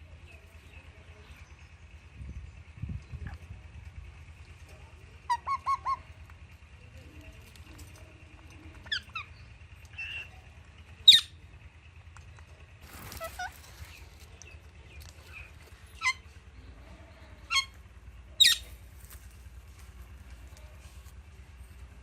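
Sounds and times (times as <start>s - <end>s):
parrots chirping: 11.0s - 11.4s, 15.2s - 16.3s, 17.4s - 17.7s, 18.4s - 18.8s.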